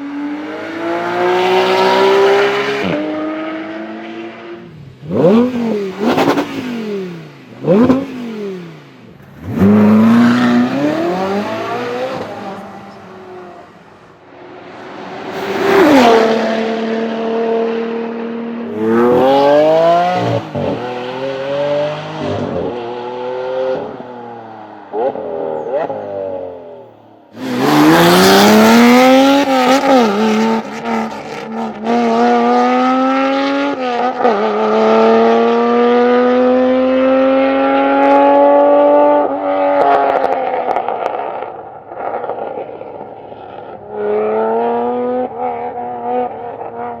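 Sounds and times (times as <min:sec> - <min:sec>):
car engine revving and accelerating: 0:00.0 - 0:47.0.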